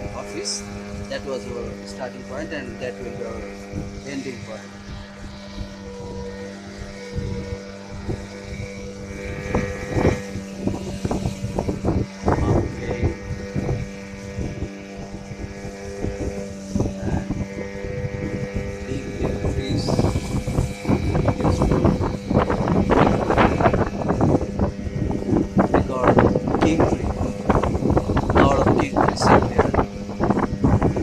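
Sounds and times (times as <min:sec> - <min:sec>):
boat engine running: 0:00.0 - 0:31.0.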